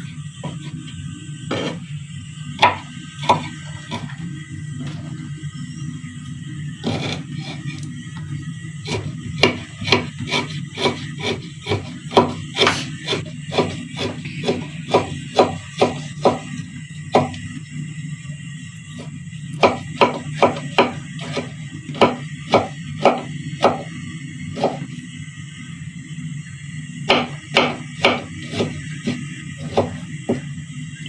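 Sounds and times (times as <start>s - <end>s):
knife chopping on cutting board: 1.5s - 1.8s, 2.6s - 4.2s, 6.8s - 7.6s, 8.9s - 17.4s, 19.6s - 23.9s, 24.6s - 24.9s, 27.1s - 30.5s.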